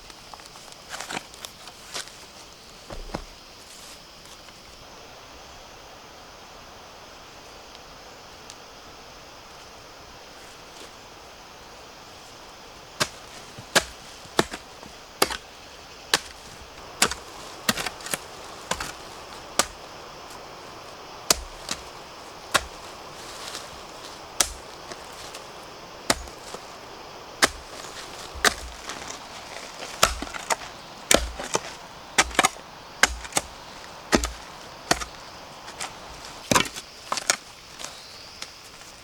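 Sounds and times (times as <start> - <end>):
blade chopping bamboo: 13.0 - 15.4, 16.1 - 19.9, 21.3 - 26.7, 27.4 - 37.4.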